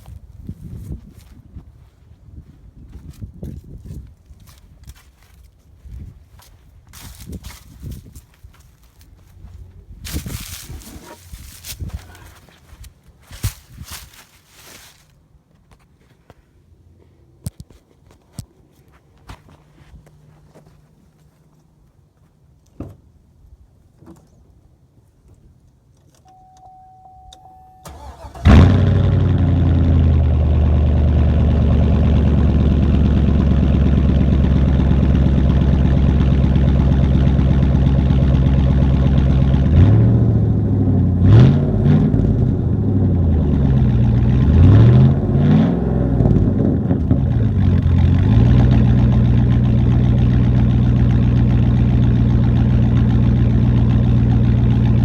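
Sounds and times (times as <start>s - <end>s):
pickup engine cranking and starting: 27.7s - 55.0s
pickup engine idling and revving: 27.9s - 55.0s.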